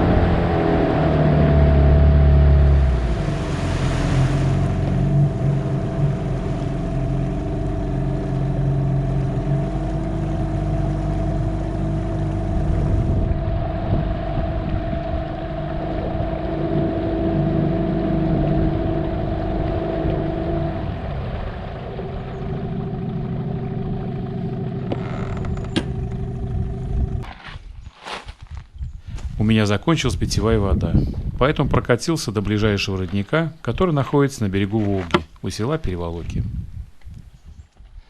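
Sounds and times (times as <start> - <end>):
outboard motor running: 0.0 - 27.4.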